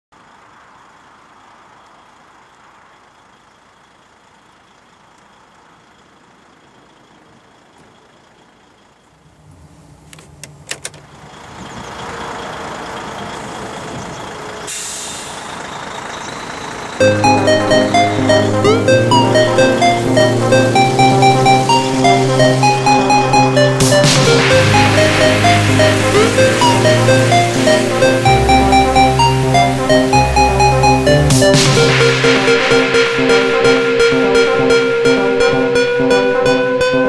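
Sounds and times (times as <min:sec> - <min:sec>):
truck engine running: 0:00.1 - 0:37.0
air hiss burst: 0:14.7 - 0:15.4.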